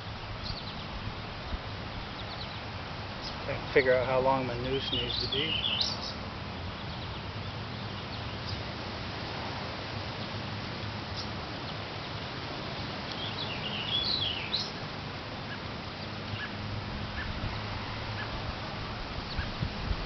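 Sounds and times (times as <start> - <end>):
background hiss: 0.0 - 20.0
songbird warbling: 4.4 - 8.6, 11.1 - 12.3, 13.0 - 17.4, 19.2 - 19.7.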